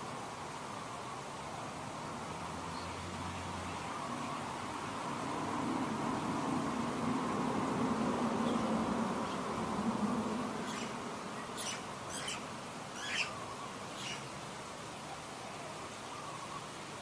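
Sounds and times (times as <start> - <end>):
steady background hiss: 0.0 - 17.0
high bird chirps: 10.6 - 12.4, 13.0 - 13.4.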